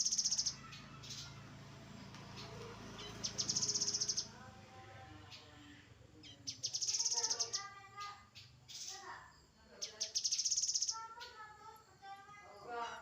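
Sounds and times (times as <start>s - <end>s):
bird trill: 0.0s - 1.6s, 2.3s - 4.4s, 6.2s - 9.2s, 9.8s - 11.8s.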